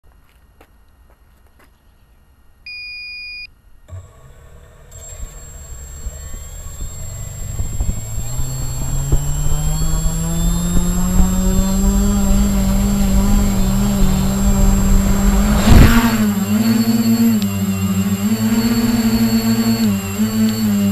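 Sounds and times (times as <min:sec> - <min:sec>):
short beep: 0:02.7 - 0:03.5
model helicopter rotor and motor: 0:03.9 - 0:20.9
loud brief whoosh: 0:10.6 - 0:17.4.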